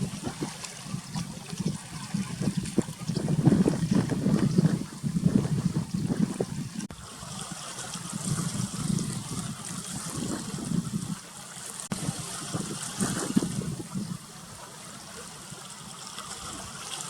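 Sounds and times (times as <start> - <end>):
small waves lapping: 0.0 - 17.0.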